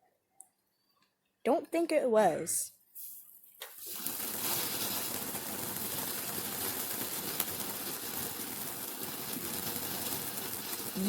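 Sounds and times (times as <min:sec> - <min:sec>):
firework hissing and crackling: 0:03.0 - 0:11.0.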